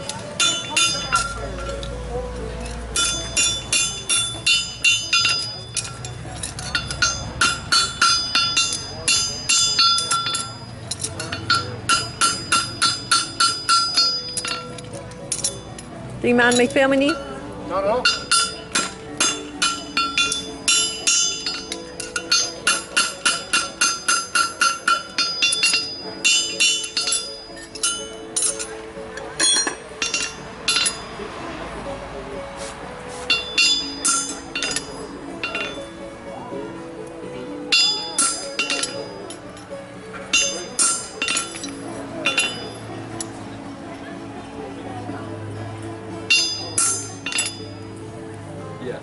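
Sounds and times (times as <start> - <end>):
hammer striking horseshoe on anvil: 0.4 - 1.7, 2.9 - 15.8, 18.0 - 31.2, 33.3 - 35.9, 37.7 - 39.6, 40.2 - 43.4, 46.3 - 47.7.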